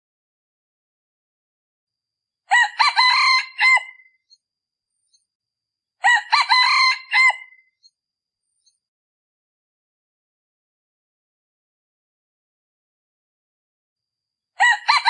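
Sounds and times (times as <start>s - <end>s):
junglefowl cock crowing: 2.5s - 4.1s, 6.0s - 7.6s, 14.6s - 15.0s.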